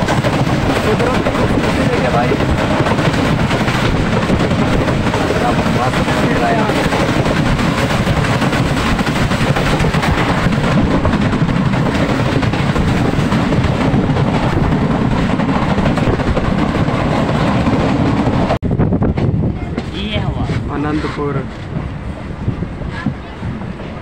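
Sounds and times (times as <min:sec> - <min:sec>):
train wheels rumbling on track: 0:00.0 - 0:24.0.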